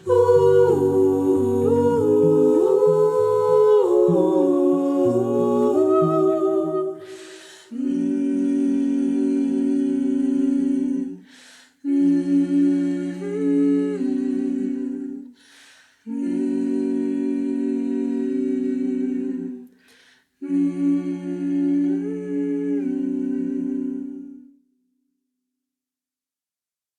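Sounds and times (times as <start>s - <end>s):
a cappella humming: 0.0s - 24.6s
breaths: 7.0s - 7.8s, 11.2s - 11.9s, 15.3s - 16.1s, 19.7s - 20.4s.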